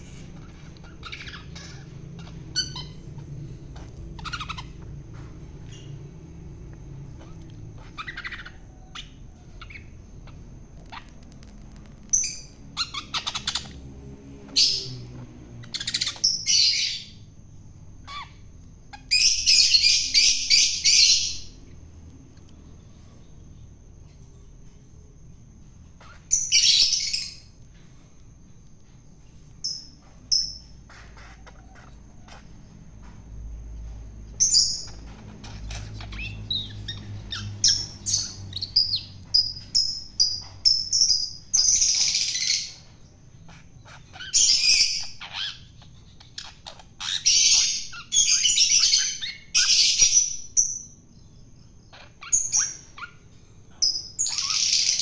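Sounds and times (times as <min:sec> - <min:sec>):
shrike rasping squawks: 0:30.7 - 0:32.6.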